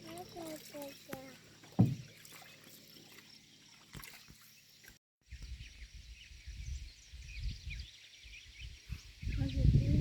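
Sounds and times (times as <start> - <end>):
small birds chirping: 0.0 - 10.0
light knocks: 1.8 - 2.1
wind rumble on microphone: 5.3 - 10.0.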